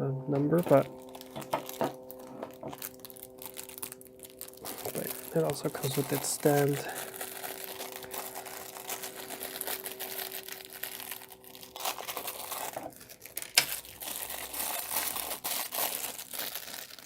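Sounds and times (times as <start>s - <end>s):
packaging crinkling and rustling: 0.6s - 17.0s.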